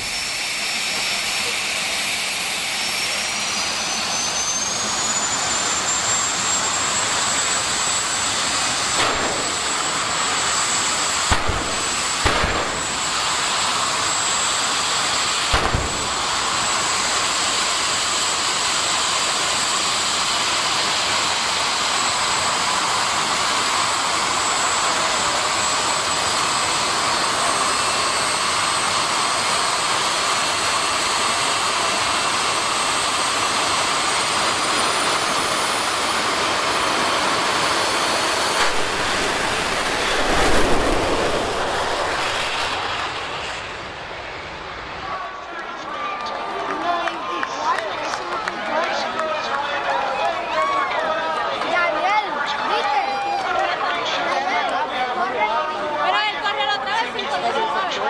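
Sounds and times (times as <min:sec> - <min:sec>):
jet engine roar and whine: 0:00.0 - 0:58.0
sharp thumps: 0:11.3 - 0:13.2, 0:15.6 - 0:16.4.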